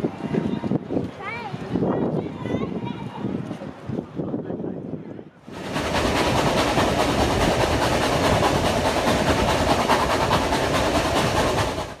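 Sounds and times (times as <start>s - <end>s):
train rumbling and rattling: 5.4s - 12.0s.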